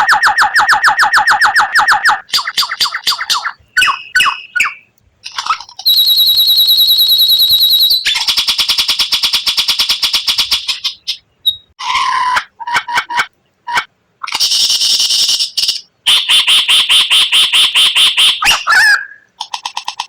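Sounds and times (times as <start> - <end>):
bird chirps: 0.0 - 11.8, 14.2 - 20.0
bird singing rapid rattling notes: 0.0 - 11.8, 14.2 - 20.0
shrill fast bird trill: 0.0 - 12.4, 14.2 - 20.0.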